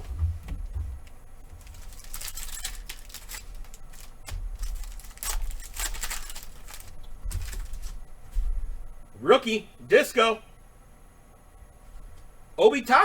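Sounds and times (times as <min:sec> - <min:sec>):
trading cards sliding and rustling: 0:01.6 - 0:08.1.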